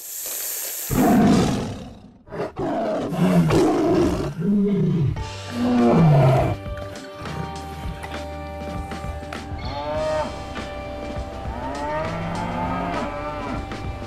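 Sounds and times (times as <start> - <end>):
lion roaring: 0.9 - 6.6, 11.5 - 13.7
music with held tones: 5.2 - 14.0.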